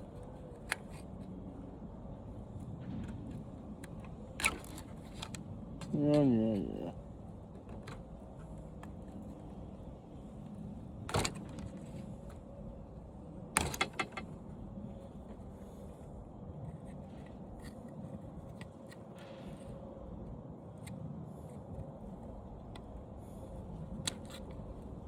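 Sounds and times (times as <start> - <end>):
faint steady hum: 0.0 - 25.0
handling clatter of parts: 13.6 - 14.4.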